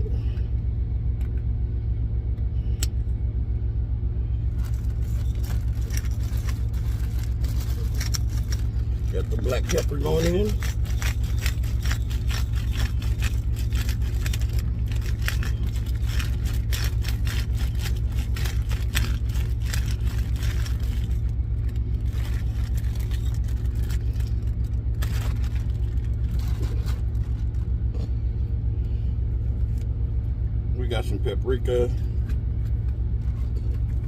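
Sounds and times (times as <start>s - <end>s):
truck engine idling: 0.0s - 34.0s
small clicks and scrapes: 4.6s - 28.1s.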